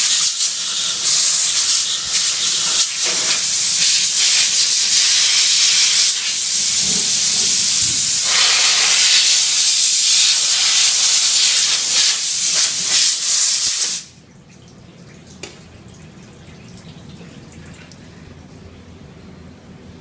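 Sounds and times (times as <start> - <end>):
loud hissing spray jet: 0.0 - 14.1.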